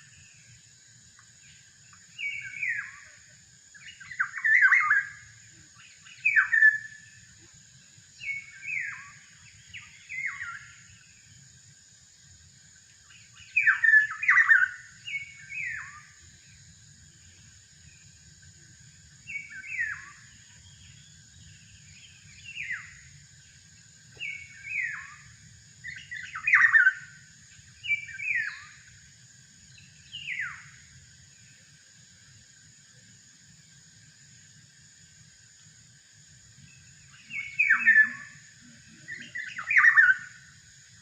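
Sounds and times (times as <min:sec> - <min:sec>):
steady high-pitched hiss: 0:00.0 - 0:41.0
oriole whistled calls: 0:02.2 - 0:03.2, 0:03.8 - 0:07.2, 0:08.2 - 0:11.0, 0:13.1 - 0:16.2, 0:19.3 - 0:20.9, 0:24.2 - 0:27.2, 0:27.8 - 0:28.8, 0:30.1 - 0:30.8, 0:37.1 - 0:40.5.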